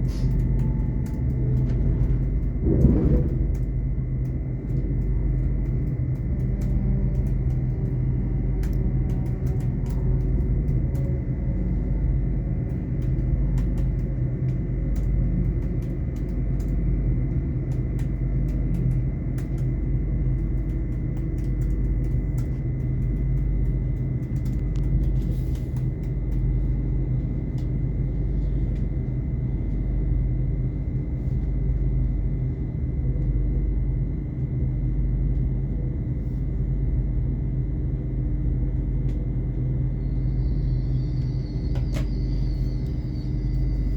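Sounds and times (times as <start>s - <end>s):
train wheels rumbling: 0.0s - 11.9s
high whine: 39.6s - 43.9s.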